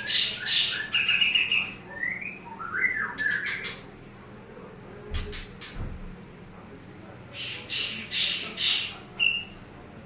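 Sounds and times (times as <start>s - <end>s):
bird chirping and squawking: 0.0s - 3.8s, 7.4s - 9.6s.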